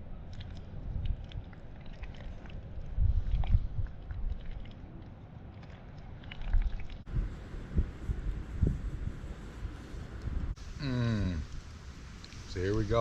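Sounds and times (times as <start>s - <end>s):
wind buffeting microphone: 0.0s - 5.0s, 6.6s - 10.8s.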